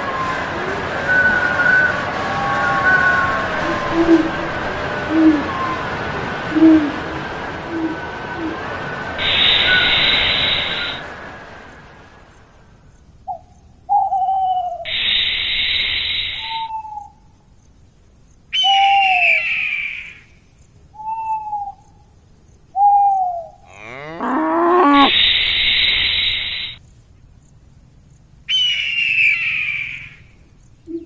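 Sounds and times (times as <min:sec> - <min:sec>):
long rising animal call: 0:00.0 - 0:11.1, 0:23.6 - 0:26.8
snake hissing: 0:09.2 - 0:11.0, 0:14.9 - 0:16.6, 0:24.8 - 0:26.8
short falling animal cries: 0:23.7 - 0:25.2.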